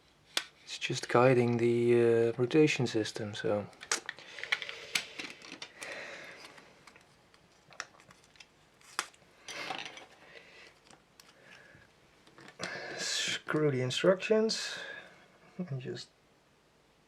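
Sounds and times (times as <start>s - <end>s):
plastic parts clicking and tapping: 3.7s - 11.4s.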